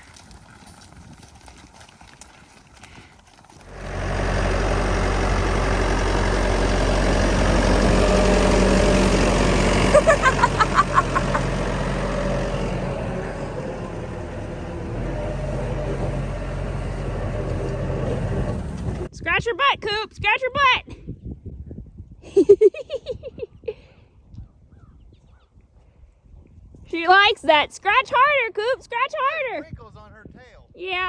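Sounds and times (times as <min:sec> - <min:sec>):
vehicle engine running: 0:03.4 - 0:19.1.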